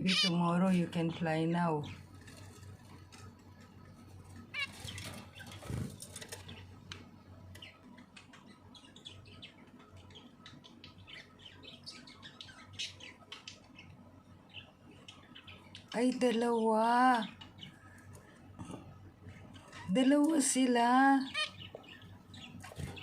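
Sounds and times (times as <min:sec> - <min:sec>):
pet birds chirping: 0:00.0 - 0:23.0
wings fluttering: 0:02.0 - 0:06.8, 0:22.6 - 0:23.0.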